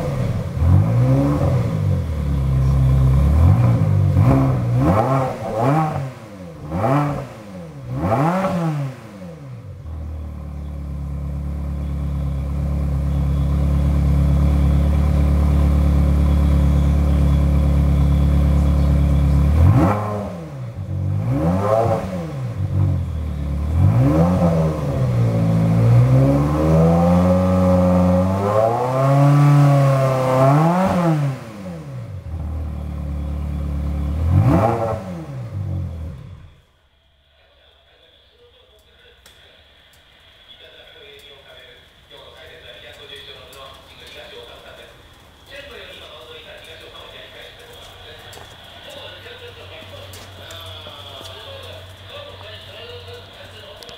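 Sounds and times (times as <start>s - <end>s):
sports car engine revving: 0.0s - 36.6s.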